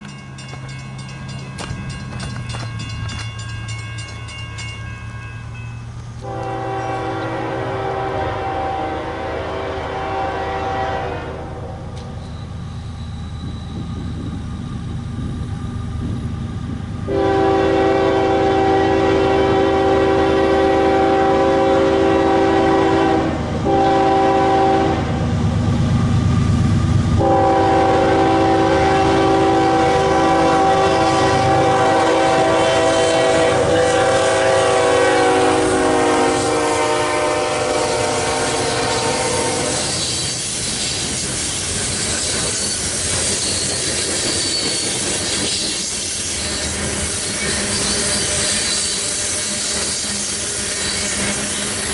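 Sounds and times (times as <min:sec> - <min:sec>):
train rumbling: 0:00.0 - 0:51.9
locomotive air horn blasts: 0:06.2 - 0:11.8, 0:17.1 - 0:25.2, 0:27.2 - 0:40.4.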